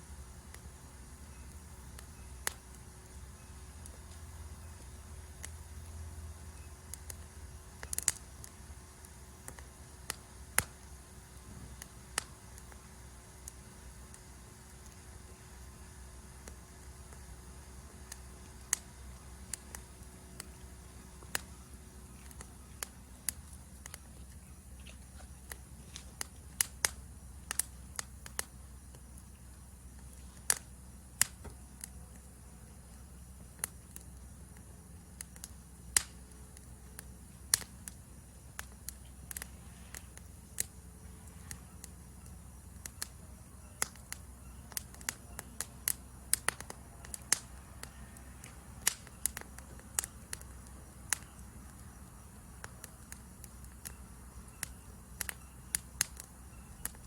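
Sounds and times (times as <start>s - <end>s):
forest insects chirring: 0.0s - 57.0s
wood fire crackling: 0.0s - 57.0s.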